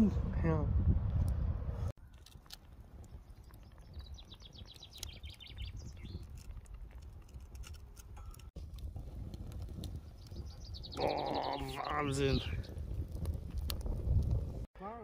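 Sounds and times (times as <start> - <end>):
campfire wood snapping: 2.0 - 14.7
songbird singing descending notes: 3.1 - 6.2.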